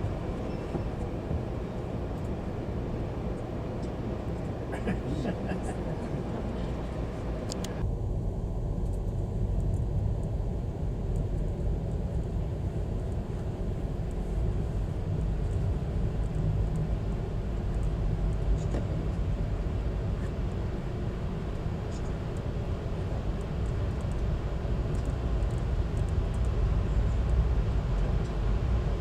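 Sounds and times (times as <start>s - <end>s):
train rumbling: 0.0s - 29.0s
faint clicks: 7.5s - 7.8s.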